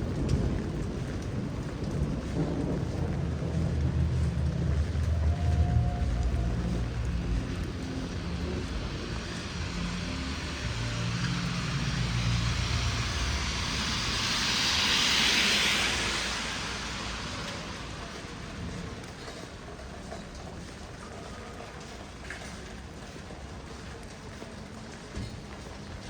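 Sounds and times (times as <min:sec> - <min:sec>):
low motor hum: 0:00.0 - 0:19.2
steady rain: 0:00.0 - 0:26.0
tyre hiss on wet pavement: 0:00.0 - 0:26.0.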